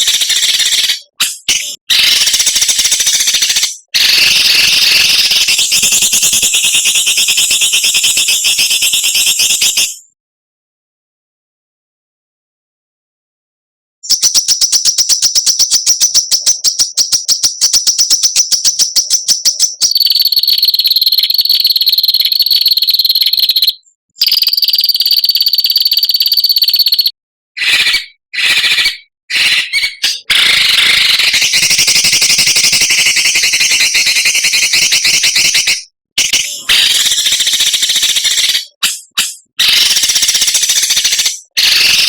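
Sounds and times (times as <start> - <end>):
songbird harsh buzzing rasps: 27.6 - 42.0
songbird sharp repeated notes: 36.2 - 42.0.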